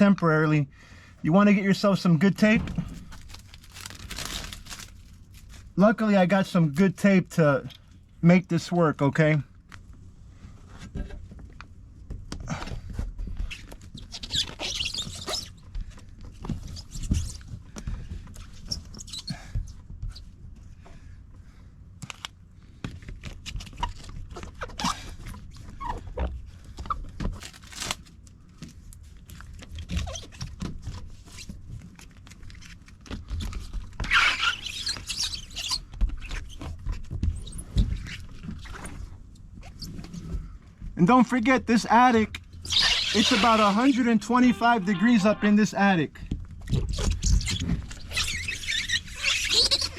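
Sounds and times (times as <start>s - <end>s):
hands handling tape: 2.8s - 5.8s, 27.3s - 28.1s
tape tearing off a roll: 2.8s - 5.8s, 27.3s - 28.1s, 42.6s - 45.2s.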